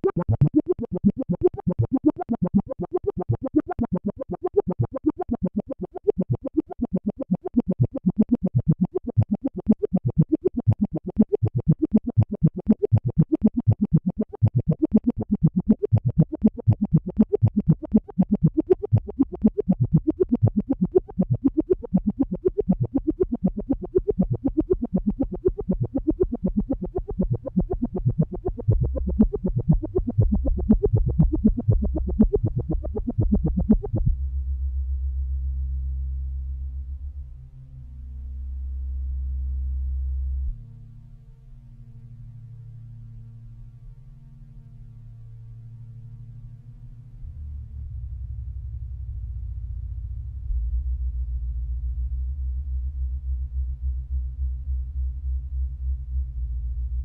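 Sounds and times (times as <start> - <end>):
synthesizer playing fast short notes: 0.0 - 34.1
low bass part: 10.6 - 37.1.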